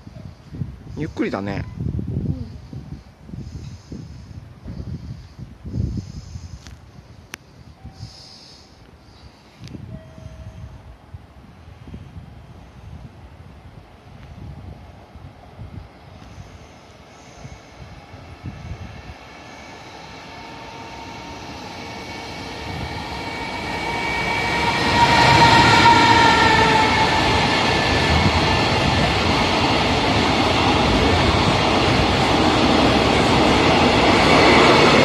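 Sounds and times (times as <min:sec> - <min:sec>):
locomotive whine: 0:15.2 - 0:35.0.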